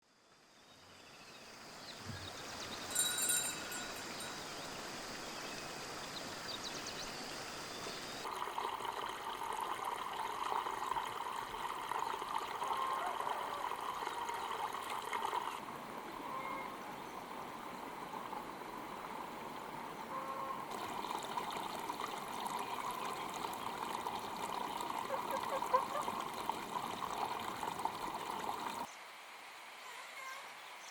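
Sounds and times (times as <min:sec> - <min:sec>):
high chirping: 0:02.0 - 0:04.8
water trickling: 0:02.0 - 0:19.8, 0:20.6 - 0:28.9.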